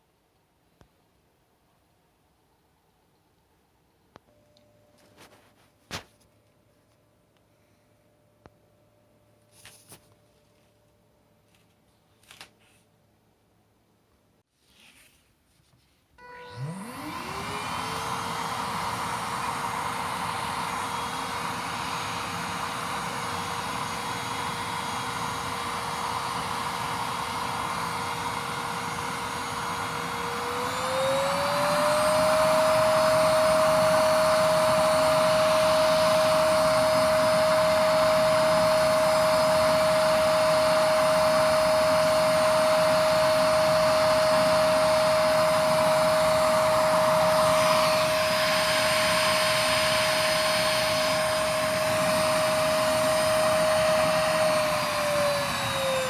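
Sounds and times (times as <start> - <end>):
vacuum cleaner motor whine: 16.2 - 56.0.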